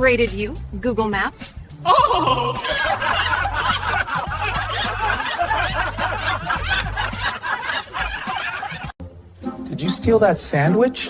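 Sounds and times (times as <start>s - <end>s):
people laughing: 1.8s - 9.0s.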